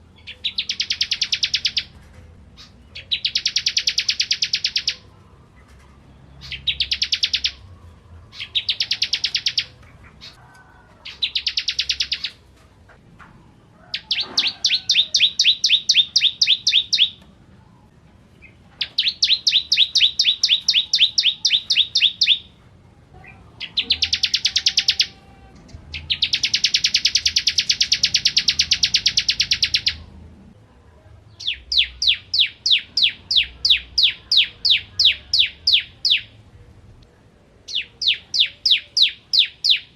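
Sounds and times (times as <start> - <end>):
bird singing high clear notes: 0.2 - 1.9, 2.6 - 5.1, 6.3 - 7.7, 18.4 - 22.5, 23.6 - 30.1.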